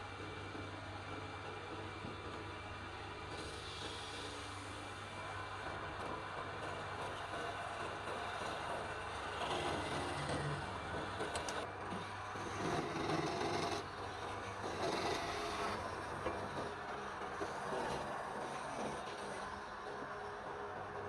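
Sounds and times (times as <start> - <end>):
lathe motor hum: 0.0 - 21.0
turning tool scraping wood: 9.4 - 11.7, 12.4 - 19.4.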